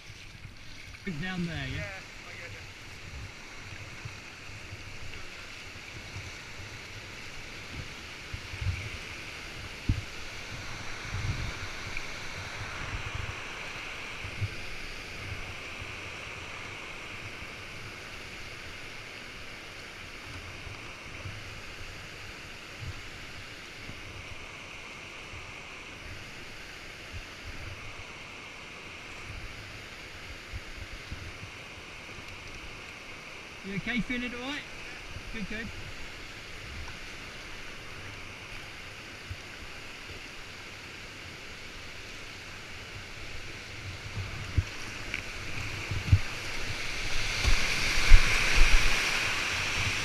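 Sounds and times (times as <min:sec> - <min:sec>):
flowing river water: 0:00.0 - 0:50.0
wind buffeting microphone: 0:07.6 - 0:16.0, 0:43.0 - 0:50.0.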